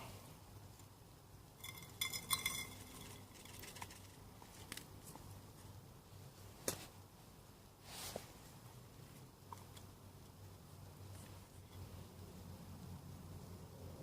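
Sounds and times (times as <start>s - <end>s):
camp cookware clinking: 1.6s - 3.6s.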